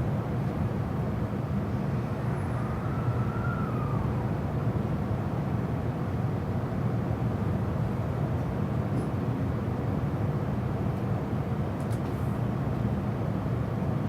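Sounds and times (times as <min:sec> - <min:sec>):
faint whine: 0:01.6 - 0:05.3.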